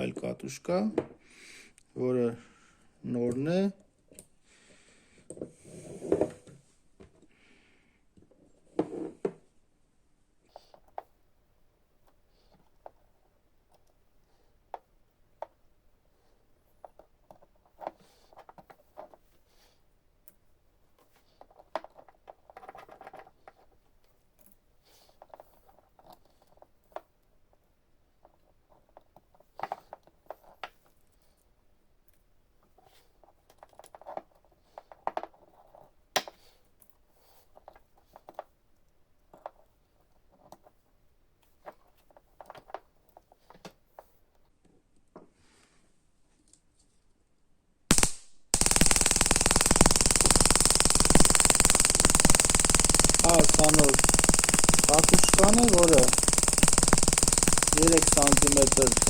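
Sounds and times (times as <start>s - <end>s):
hands handling plastic parts: 16.7s - 44.5s.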